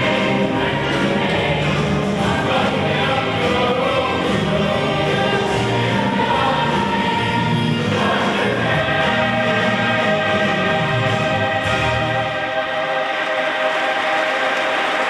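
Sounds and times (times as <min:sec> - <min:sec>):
choir singing with accompaniment: 0:00.0 - 0:15.0.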